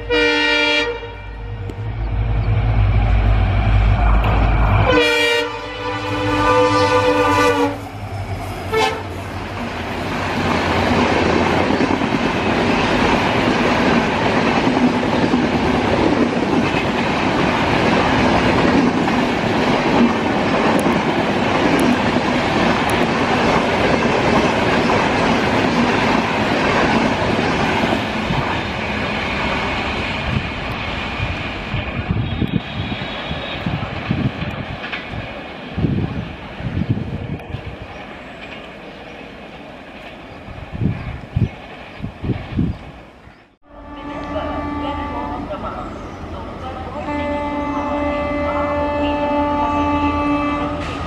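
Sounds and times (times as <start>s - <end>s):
locomotive horn blast: 0.0s - 2.2s, 4.7s - 7.8s, 8.7s - 9.2s, 32.2s - 33.8s, 43.6s - 45.6s, 47.0s - 51.0s
train wheels clattering on rail: 8.2s - 43.1s, 50.7s - 51.0s.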